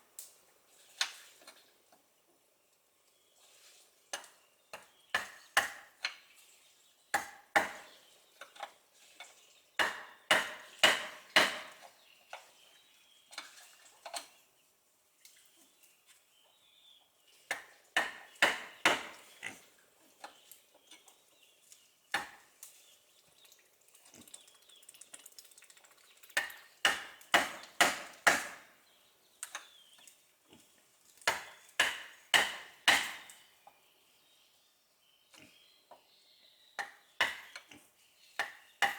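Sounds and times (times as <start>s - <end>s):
tool striking wood: 9.8s - 11.8s, 17.5s - 19.2s, 26.8s - 28.6s, 31.3s - 33.3s.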